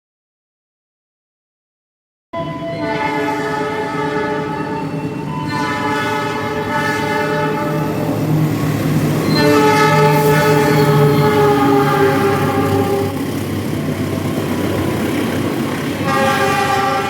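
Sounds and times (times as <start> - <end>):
train horn blasts: 2.4 - 8.2, 9.2 - 13.2, 15.9 - 17.0
train rumbling past: 2.4 - 17.0.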